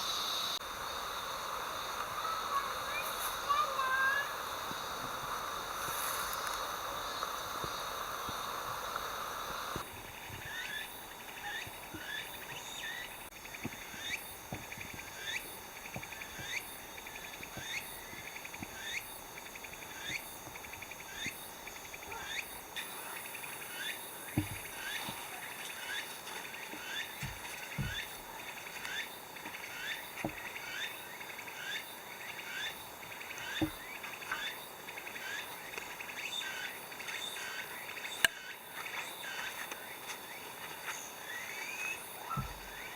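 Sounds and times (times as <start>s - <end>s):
insects trilling: 0.0s - 42.9s
rising chirp-like insect call: 0.0s - 42.9s
soft knocks: 14.5s - 15.0s, 24.4s - 24.8s, 26.7s - 28.3s, 30.2s - 30.5s, 42.4s - 42.8s.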